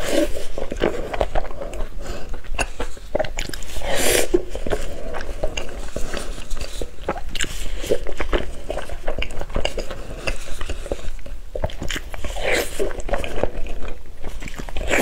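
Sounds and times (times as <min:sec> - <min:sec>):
chewing meat with wet smacks: 0:00.6 - 0:03.8, 0:04.4 - 0:15.0.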